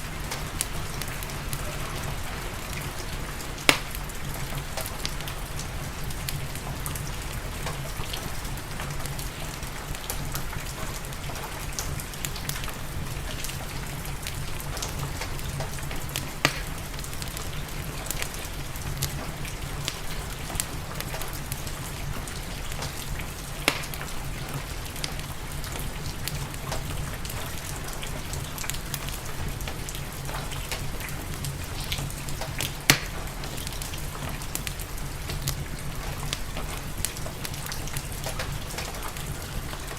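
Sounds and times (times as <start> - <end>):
steady rain: 0.0 - 39.9
wood fire crackling: 0.0 - 39.9.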